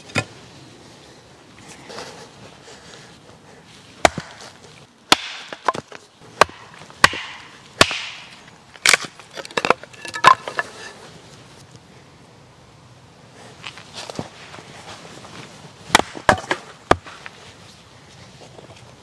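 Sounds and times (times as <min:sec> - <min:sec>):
blade chopping wood: 0:04.0 - 0:04.5, 0:05.1 - 0:10.6, 0:15.9 - 0:17.2.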